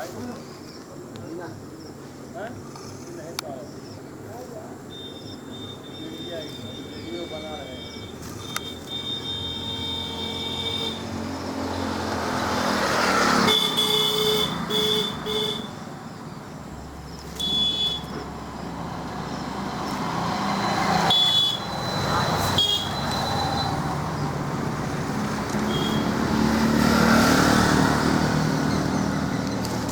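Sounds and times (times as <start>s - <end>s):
road traffic going by: 0.0s - 29.9s
short horn honks: 22.4s - 23.3s, 25.6s - 26.2s.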